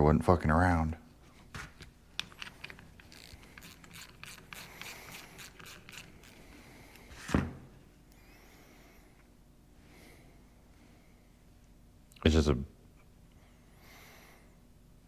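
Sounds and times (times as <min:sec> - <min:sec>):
hand tools clicking and scraping: 0:02.2 - 0:06.5.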